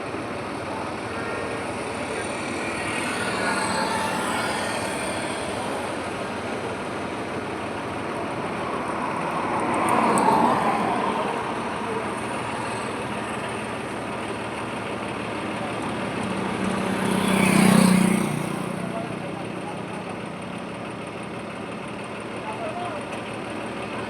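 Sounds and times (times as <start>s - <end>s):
highway traffic noise: 0.0s - 24.0s
vehicle passing close: 0.4s - 19.2s.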